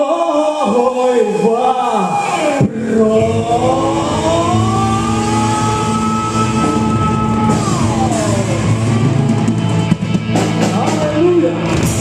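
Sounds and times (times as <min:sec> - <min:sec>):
rock band playing: 0:02.1 - 0:12.0
gliding lead guitar note: 0:02.6 - 0:10.7.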